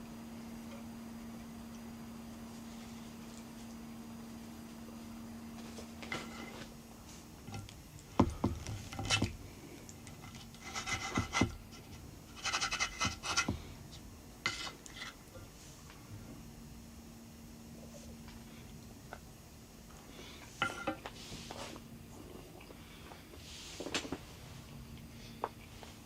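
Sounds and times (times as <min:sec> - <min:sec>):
faint steady hum: 0:00.0 - 0:26.0
rustling and scraping: 0:05.5 - 0:09.4, 0:10.0 - 0:16.0, 0:20.4 - 0:22.4, 0:23.4 - 0:24.7.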